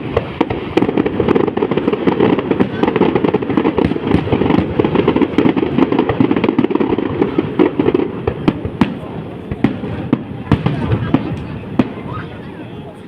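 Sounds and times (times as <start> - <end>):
fireworks crackling and popping: 0.0 - 13.0
sharp fireworks cracks: 0.0 - 13.0.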